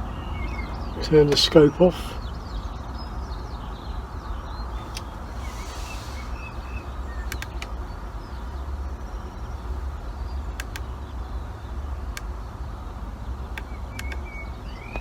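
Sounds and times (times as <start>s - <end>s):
faint bird chirps: 2.2s - 11.9s, 13.6s - 15.0s
low rumble: 4.6s - 7.4s
light clicks: 7.3s - 7.7s, 10.6s - 10.9s, 13.5s - 14.3s.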